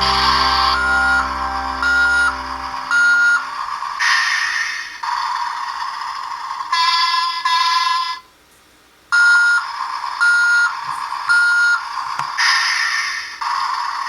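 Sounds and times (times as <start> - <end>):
buzzy electronic engine effect: 0.0 - 4.0
toy reversing beeps: 1.8 - 3.6, 9.2 - 11.9.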